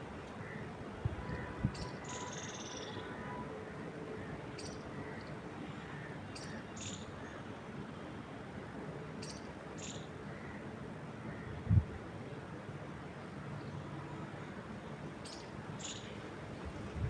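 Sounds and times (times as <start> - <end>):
wind rushing in trees: 11.4 - 12.2, 16.1 - 17.0.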